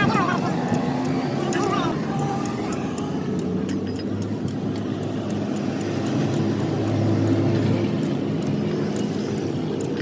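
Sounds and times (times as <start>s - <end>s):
faint light ticks: 2.2s - 10.0s.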